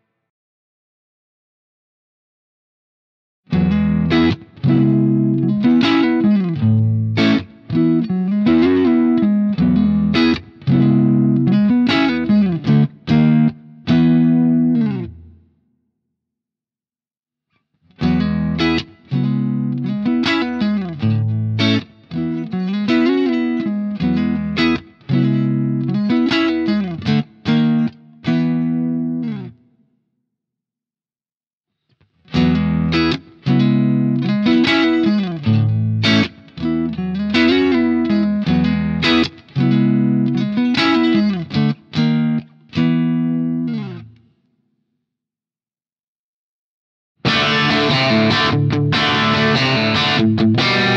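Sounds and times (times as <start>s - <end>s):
overdriven electric guitar: 3.5s - 15.4s, 17.9s - 29.6s, 32.1s - 44.3s, 47.2s - 50.9s.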